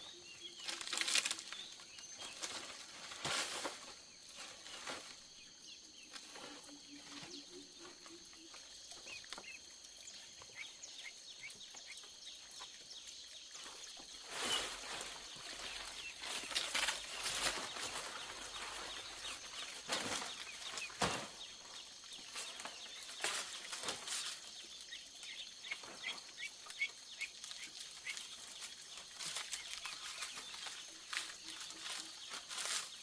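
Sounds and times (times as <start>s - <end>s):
knocks and clatters on bamboo: 0.6s - 5.2s, 13.6s - 24.5s.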